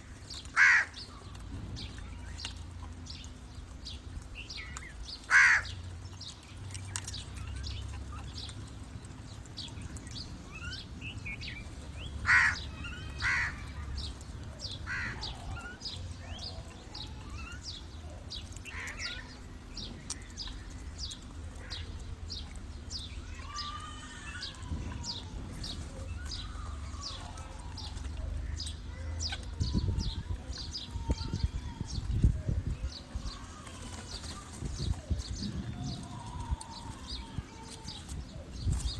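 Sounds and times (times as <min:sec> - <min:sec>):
birds chirping: 0:00.0 - 0:38.9
crows calling: 0:00.2 - 0:01.4, 0:04.6 - 0:05.9, 0:12.2 - 0:14.1, 0:14.7 - 0:15.9, 0:18.6 - 0:19.4.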